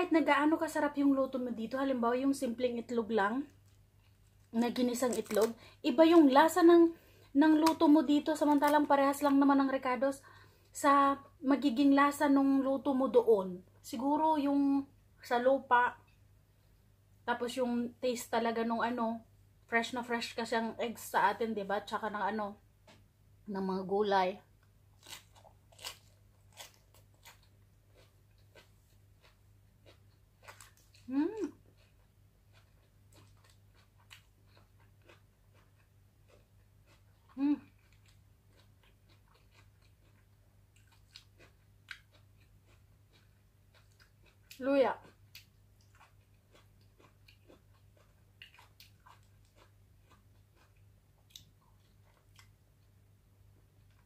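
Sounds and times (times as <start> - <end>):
steady low hum: 0.0 - 54.0
chewing mouth clicks and smacks: 31.7 - 52.6.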